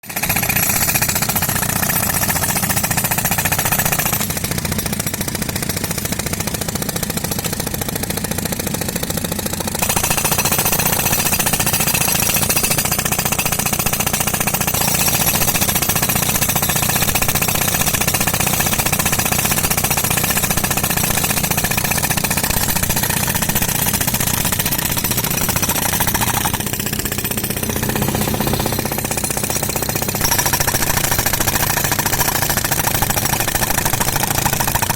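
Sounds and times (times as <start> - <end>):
pneumatic concrete breaker hammering: 0.0 - 34.9.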